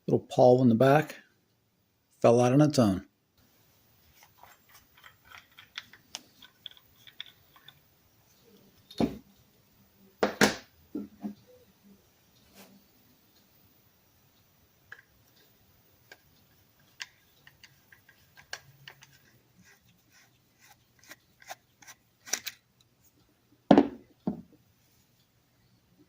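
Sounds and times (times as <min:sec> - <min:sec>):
small drill parts clicking: 0:04.4 - 0:07.8.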